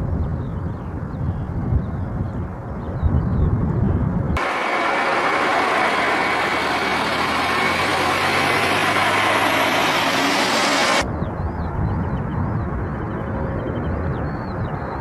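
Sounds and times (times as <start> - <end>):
jet engine rushing: 4.4 - 11.0.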